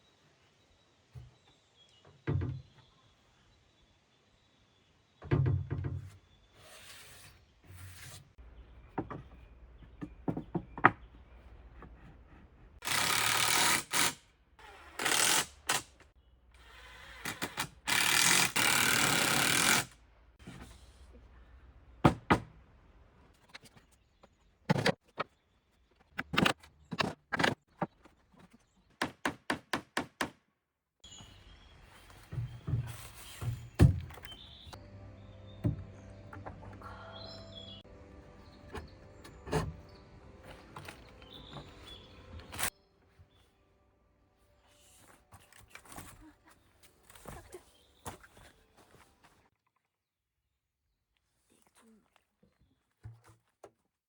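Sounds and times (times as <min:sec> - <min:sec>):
wood knocks and thuds: 0:02.2 - 0:02.7, 0:22.0 - 0:22.6, 0:32.2 - 0:34.4.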